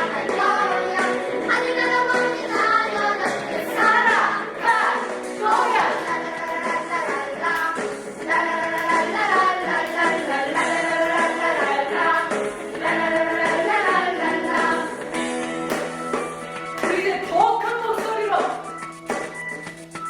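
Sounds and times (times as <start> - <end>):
children singing worship song: 0.0 - 15.3
accompaniment track with steady beat: 3.8 - 20.0.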